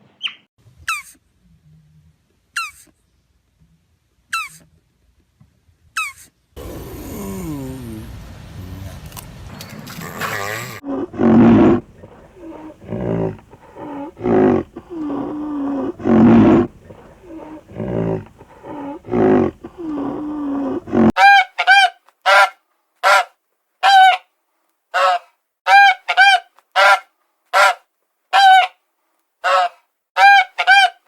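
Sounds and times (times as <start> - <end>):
low farm animal calls: 10.0 - 21.1, 29.4 - 30.9
goose honking: 29.4 - 31.0.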